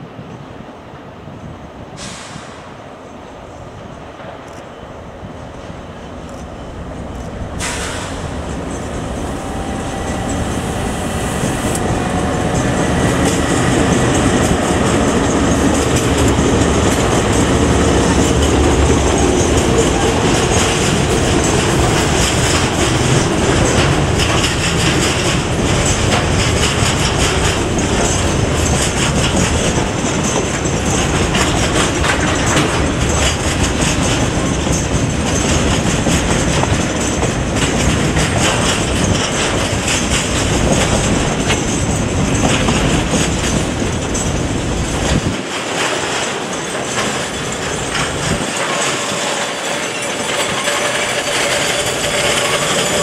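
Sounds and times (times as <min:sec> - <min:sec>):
diesel locomotives passing: 0:00.0 - 0:53.0
wheels clacking over rail joints: 0:04.1 - 0:53.0.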